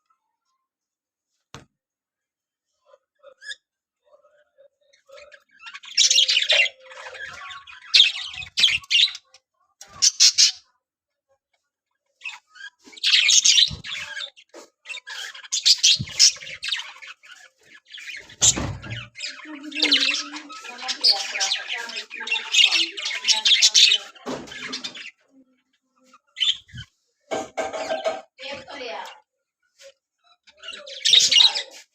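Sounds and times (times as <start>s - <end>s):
budgerigars chattering and squawking: 5.0s - 10.6s, 12.2s - 25.3s, 26.1s - 29.0s, 30.4s - 31.9s.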